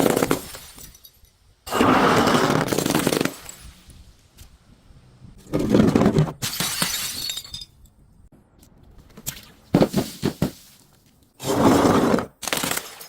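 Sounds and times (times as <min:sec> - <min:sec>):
glass breaking and crunching: 0:00.0 - 0:01.4, 0:02.6 - 0:03.8, 0:05.5 - 0:07.8.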